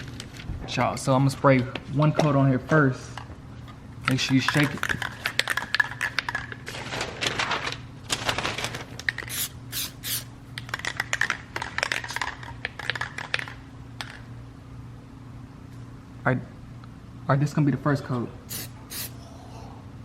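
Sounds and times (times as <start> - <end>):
aerosol can rattling when shaken: 4.2 - 6.5, 9.1 - 13.5
spray hissing: 9.3 - 10.3, 18.5 - 19.1.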